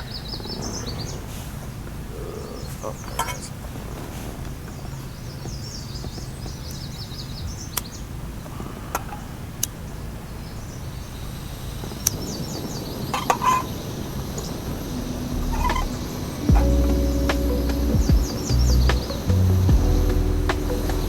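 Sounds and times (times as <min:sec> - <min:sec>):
birds chirping in trills: 0:00.0 - 0:21.0
low outdoor rumble: 0:13.8 - 0:21.0.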